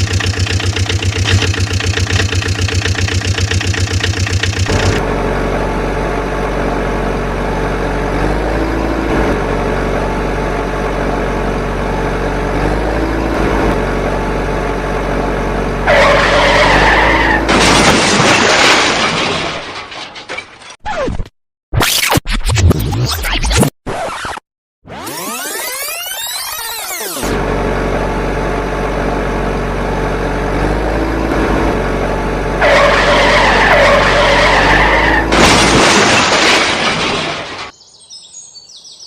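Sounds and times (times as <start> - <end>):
engine running: 0.0 - 18.7, 24.9 - 37.7
tyre skid squeal: 15.9 - 17.5, 32.6 - 35.3
noisy crash: 35.3 - 37.7.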